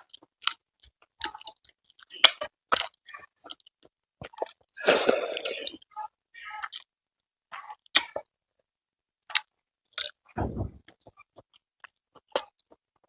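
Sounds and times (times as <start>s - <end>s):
person chewing food: 0.0s - 5.9s, 6.6s - 6.9s, 9.2s - 13.0s.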